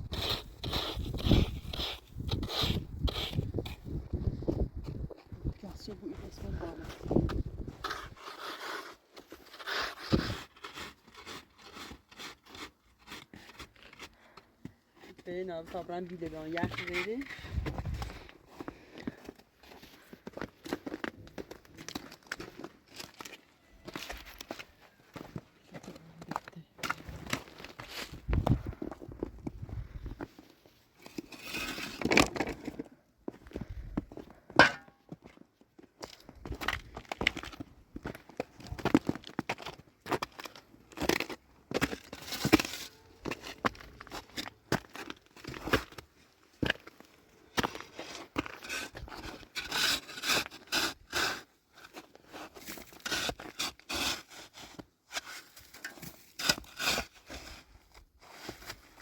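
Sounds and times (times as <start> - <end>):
rough scraping strokes: 0.1 - 4.0, 7.8 - 13.6, 31.0 - 32.3.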